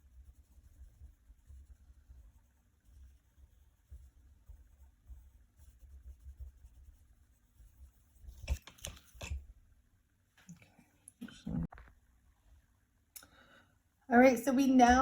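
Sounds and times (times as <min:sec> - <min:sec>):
coloring scratching on paper: 0:00.0 - 0:09.5
clicks and scrapes: 0:08.2 - 0:09.4.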